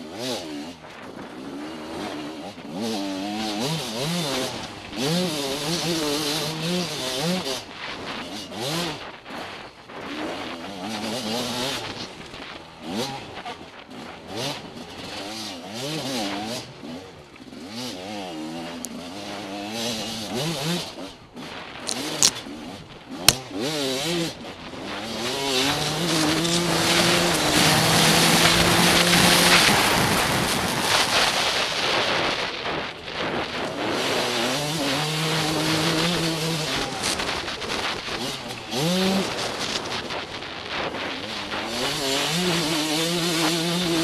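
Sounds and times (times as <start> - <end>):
motorcycle engine revving: 0.0 - 44.0
wind on microphone: 24.5 - 34.4.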